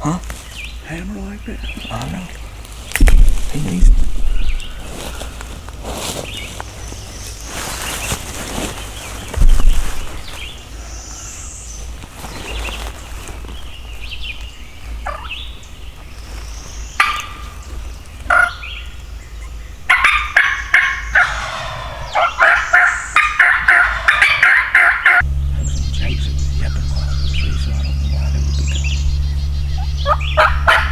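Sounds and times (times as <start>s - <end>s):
wild turkeys gobbling: 15.0s - 15.4s, 16.9s - 17.7s, 18.3s - 18.8s, 19.4s - 30.9s.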